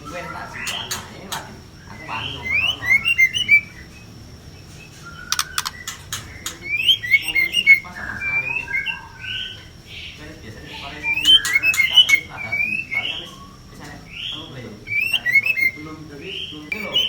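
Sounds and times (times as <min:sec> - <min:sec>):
bird harsh chatter: 0:00.0 - 0:17.0
bird whistled calls: 0:01.8 - 0:17.0
sharp clicks: 0:05.3 - 0:06.6.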